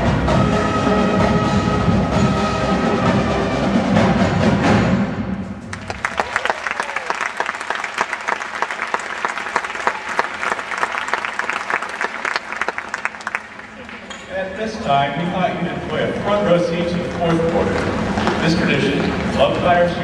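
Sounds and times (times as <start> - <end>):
audience applause: 5.7 - 14.0.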